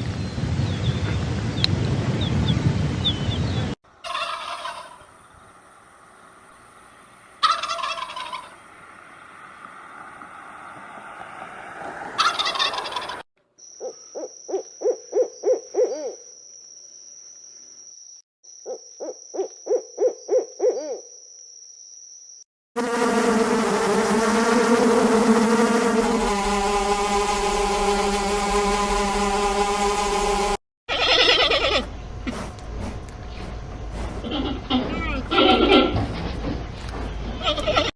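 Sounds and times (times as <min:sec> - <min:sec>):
fowl rattling call: 0:04.0 - 0:05.0, 0:07.4 - 0:08.6, 0:12.2 - 0:13.2
fowl calling: 0:04.0 - 0:05.1, 0:07.4 - 0:08.6, 0:12.2 - 0:13.2, 0:30.9 - 0:31.9
loud steady multi-tone sound: 0:22.8 - 0:30.6.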